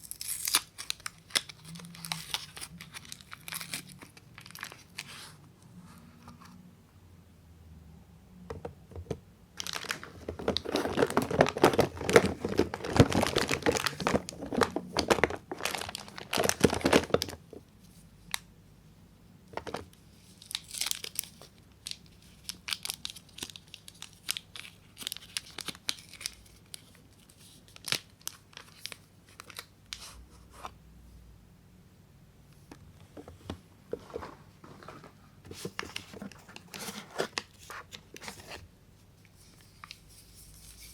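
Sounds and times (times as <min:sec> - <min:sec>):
wrapping crinkling and tearing: 0:00.0 - 0:05.4, 0:09.6 - 0:17.4, 0:19.7 - 0:30.2, 0:39.3 - 0:40.9.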